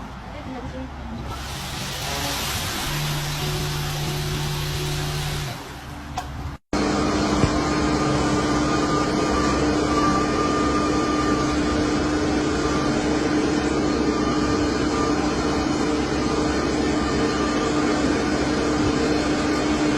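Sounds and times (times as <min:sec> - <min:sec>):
constant engine whine: 0:00.0 - 0:19.9
diesel truck engine running: 0:01.2 - 0:08.9.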